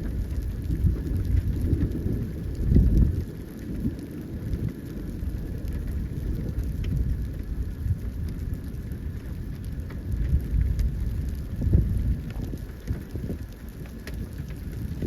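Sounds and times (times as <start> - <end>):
raindrops ticking: 0.0 - 15.0
wind and rain rumble: 0.0 - 15.0.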